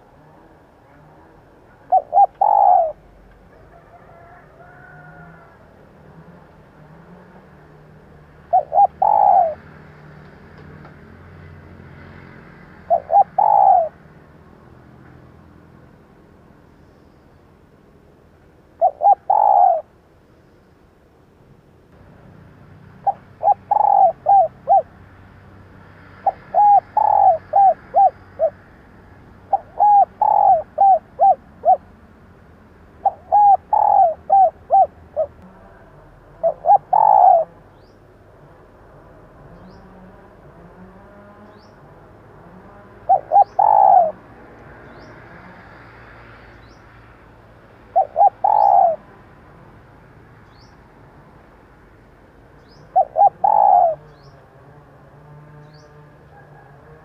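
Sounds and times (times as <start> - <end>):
dove cooing: 0.0 - 10.2, 12.7 - 14.2, 18.7 - 20.0, 23.0 - 25.0, 26.2 - 28.7, 29.3 - 32.0, 33.0 - 37.8, 38.4 - 44.4, 47.7 - 49.1, 52.8 - 54.9, 55.8 - 57.0.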